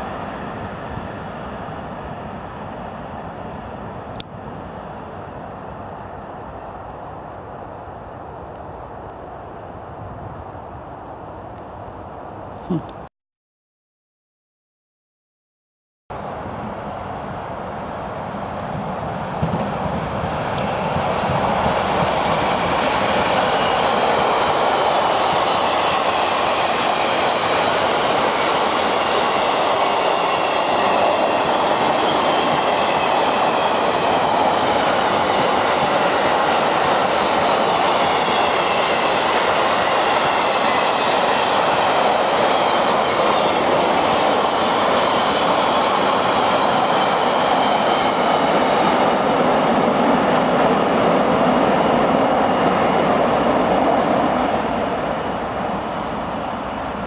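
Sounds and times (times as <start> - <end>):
freight train wheels rumbling: 0.0 - 13.0, 16.1 - 57.0.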